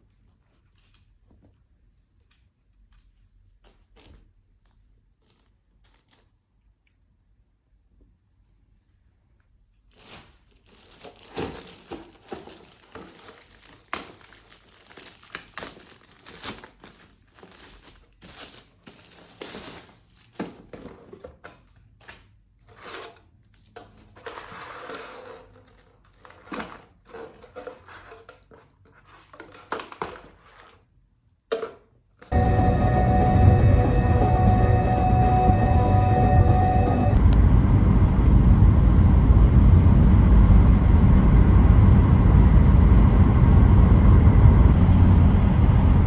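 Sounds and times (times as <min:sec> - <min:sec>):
packaging crinkling and rustling: 0:02.2 - 0:06.7, 0:09.7 - 0:22.4.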